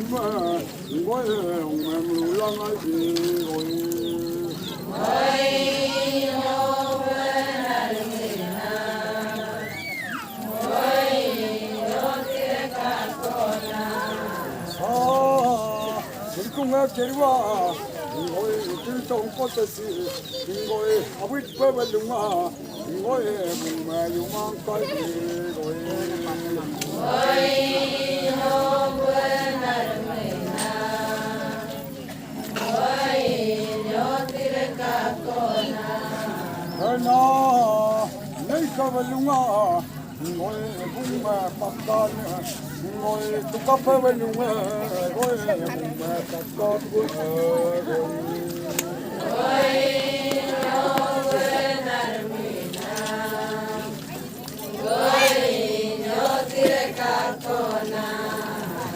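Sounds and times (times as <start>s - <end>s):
group chanting in unison: 2.9s - 16.5s, 25.4s - 37.1s, 46.9s - 58.9s.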